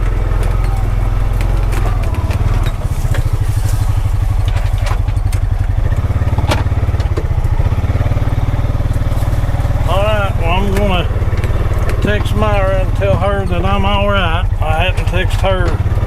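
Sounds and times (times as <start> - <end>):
sharp knocks and cracks: 0.0 - 9.9, 10.7 - 13.2
engine running steadily: 0.0 - 16.0.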